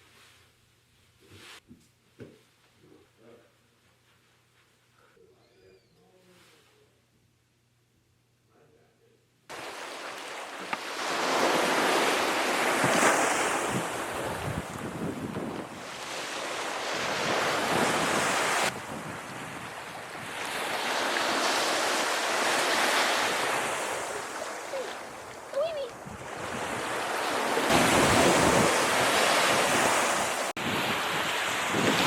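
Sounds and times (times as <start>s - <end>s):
waves washing ashore: 9.5s - 32.0s
wind buffeting microphone: 12.8s - 15.9s.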